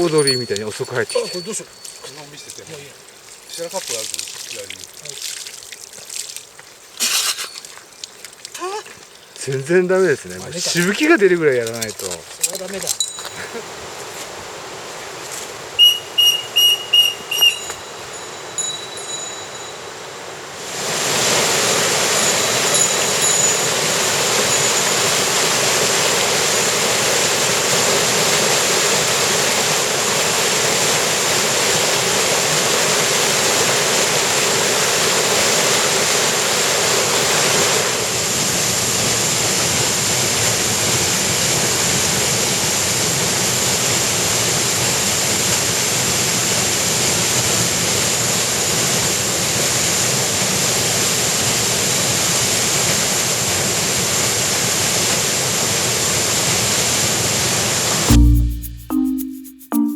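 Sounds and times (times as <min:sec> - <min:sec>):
water rushing over rocks: 0:00.0 - 0:15.8, 0:20.6 - 0:41.0.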